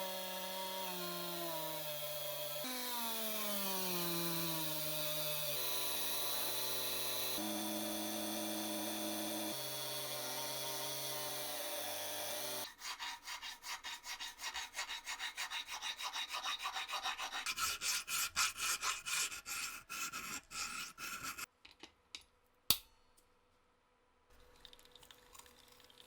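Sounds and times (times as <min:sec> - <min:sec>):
power tool whine: 0:00.0 - 0:12.7.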